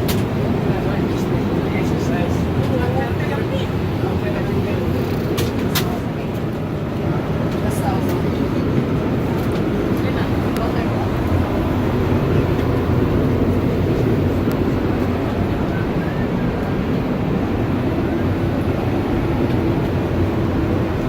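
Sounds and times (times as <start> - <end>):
airplane cabin engine noise: 0.0 - 21.0.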